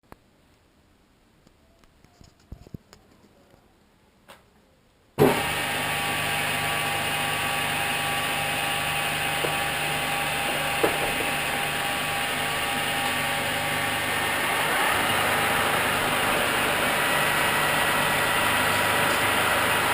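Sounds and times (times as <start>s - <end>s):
metal lathe running: 5.2s - 19.9s.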